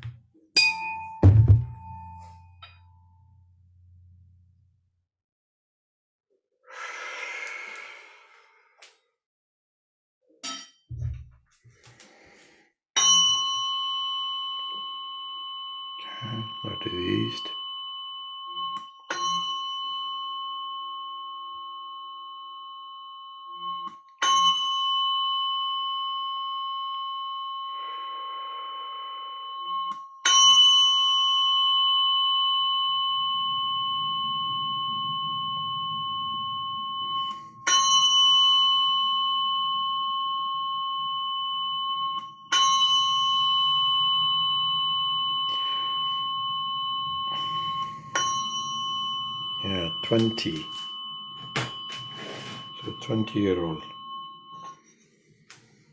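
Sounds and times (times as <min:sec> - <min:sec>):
metal chime ringing: 0:00.6 - 0:04.2, 0:15.8 - 0:20.8, 0:42.1 - 0:55.8.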